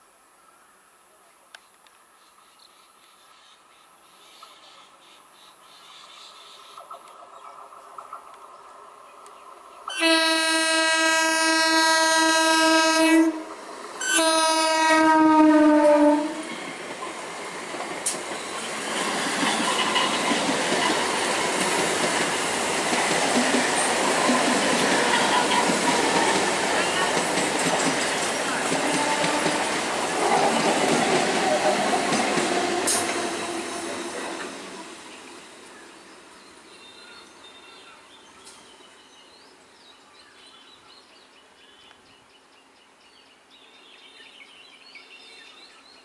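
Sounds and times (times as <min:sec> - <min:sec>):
train horn blasts: 0:09.9 - 0:16.5, 0:28.8 - 0:29.7
train coaches rushing and clattering: 0:16.4 - 0:35.9.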